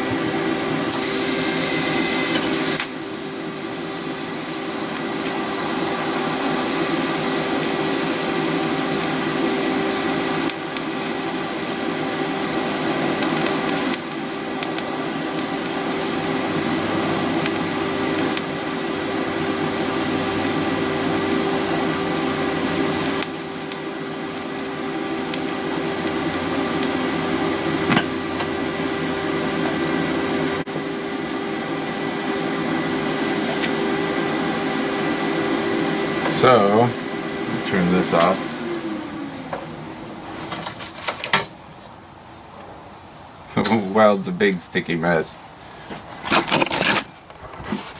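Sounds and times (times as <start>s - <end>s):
arc welding hum and crackle: 0.0s - 30.6s, 36.2s - 38.8s.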